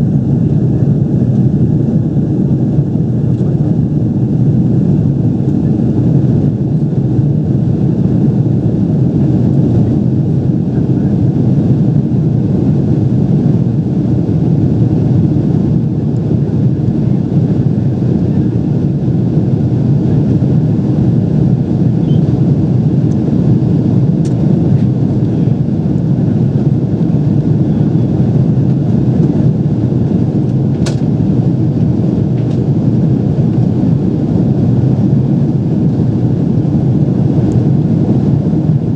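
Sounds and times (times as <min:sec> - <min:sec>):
airliner cabin rumble: 0:00.0 - 0:38.9
sharp click: 0:30.8 - 0:31.1.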